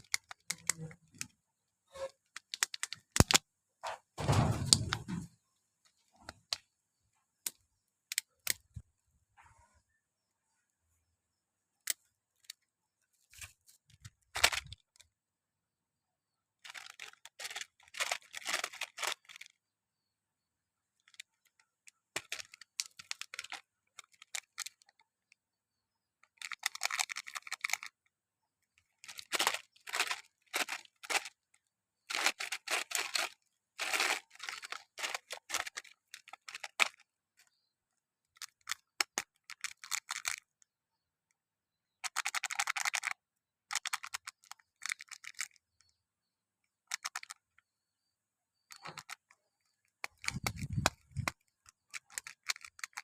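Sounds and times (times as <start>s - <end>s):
plastic wrappers crinkling and tearing: 0.0s - 1.3s, 2.0s - 3.4s, 13.3s - 15.0s, 16.6s - 19.6s, 22.2s - 25.0s, 26.2s - 27.9s, 29.0s - 31.4s, 32.1s - 37.0s, 38.4s - 40.4s, 42.0s - 45.6s, 50.0s - 53.0s.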